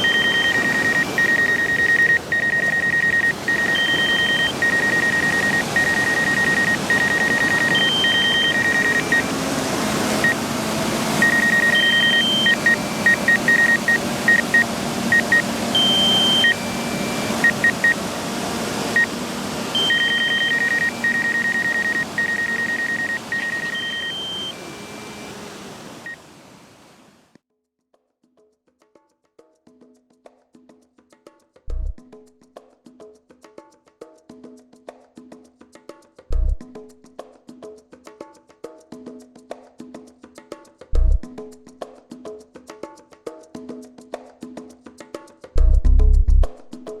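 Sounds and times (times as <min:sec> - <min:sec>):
electronic beeping: 0:00.0 - 0:26.7
steady rushing noise: 0:00.0 - 0:27.2.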